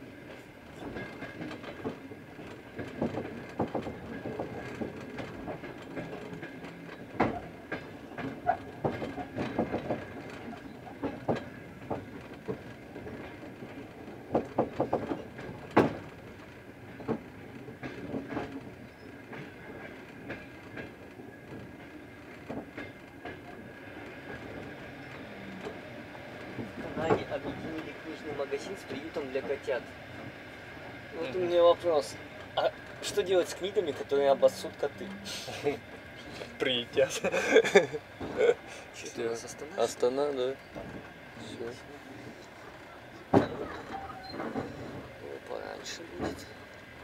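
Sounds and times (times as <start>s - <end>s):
train rumbling on track: 0.0s - 47.0s
carriage clacks and knocks: 0.8s - 13.4s, 14.3s - 16.2s.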